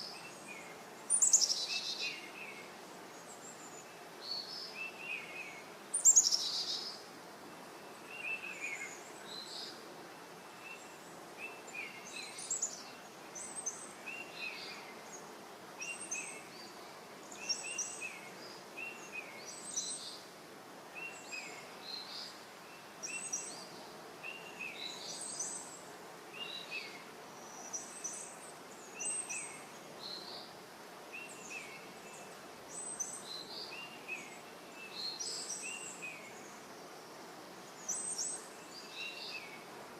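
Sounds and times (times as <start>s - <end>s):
small birds chirping: 0.0s - 20.3s, 20.9s - 39.7s
faint steady hiss: 0.0s - 39.9s.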